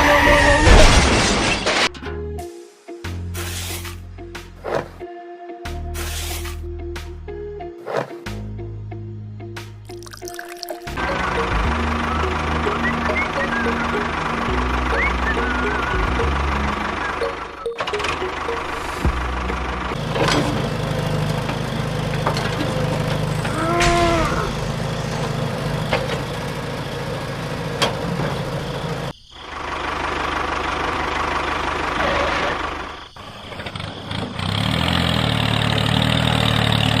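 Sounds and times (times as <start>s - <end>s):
engine humming: 10.8s - 37.0s.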